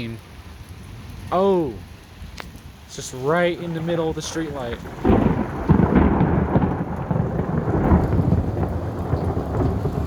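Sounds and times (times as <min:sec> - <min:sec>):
heavy rain: 0:00.0 - 0:10.0
rolling thunder with crackles: 0:02.1 - 0:10.0.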